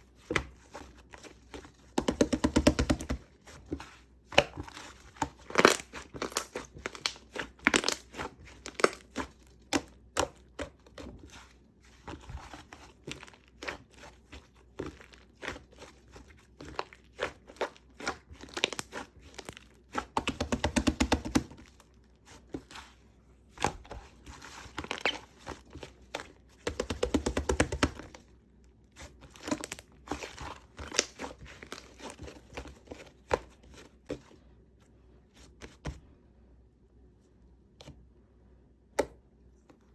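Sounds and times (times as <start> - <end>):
slime squishing with sticky pops: 4.3 - 11.4, 12.2 - 22.7, 23.6 - 28.3, 29.0 - 34.1.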